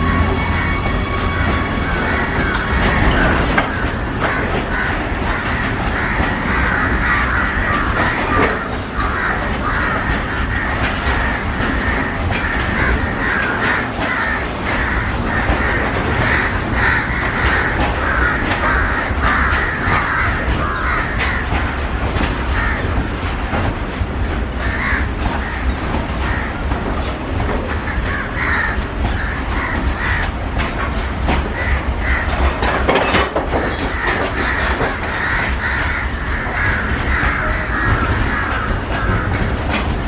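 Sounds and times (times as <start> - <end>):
freight train rumbling: 0.0 - 40.0
train wheels screeching: 0.0 - 40.0.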